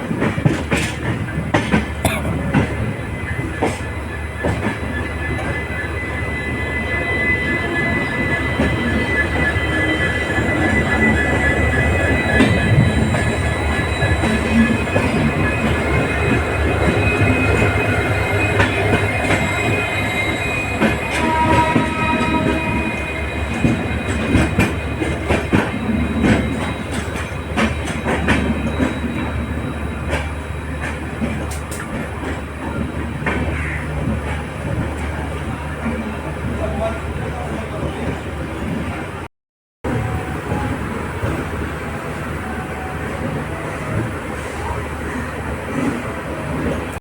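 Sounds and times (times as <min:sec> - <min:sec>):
train coach rumble: 0:00.0 - 0:39.3
wheel squeal: 0:03.2 - 0:34.4.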